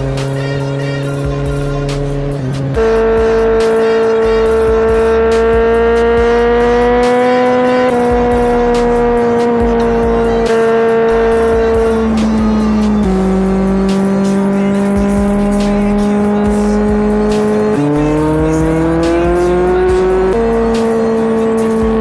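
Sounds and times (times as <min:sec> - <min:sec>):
held synth notes: 0:00.0 - 0:22.0
light hi-hat beat: 0:00.0 - 0:22.0.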